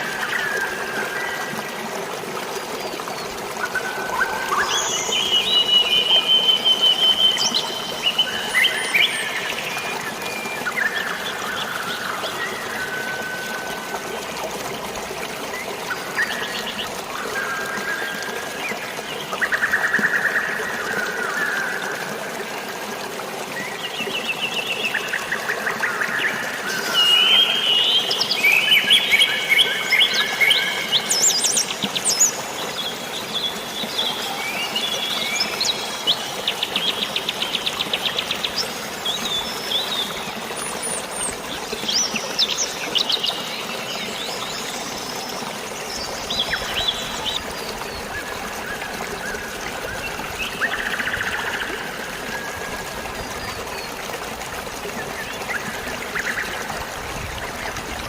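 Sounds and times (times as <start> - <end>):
flowing water: 0.0 - 58.0.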